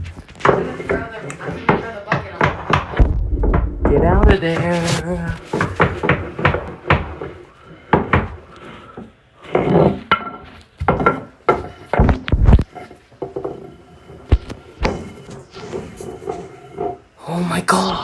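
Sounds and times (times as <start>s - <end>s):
knocks and thuds: 2.2s - 7.3s, 11.9s - 12.7s
scraping and rustling: 3.0s - 17.2s.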